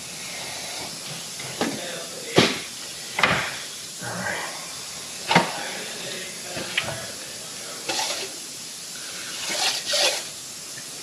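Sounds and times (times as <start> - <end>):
scraping and rustling of parts: 9.3 - 10.3.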